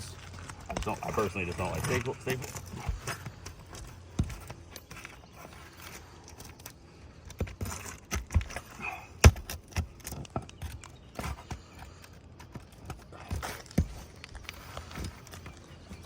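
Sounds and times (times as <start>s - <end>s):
tool prying staples from shingles: 7.3s - 11.6s.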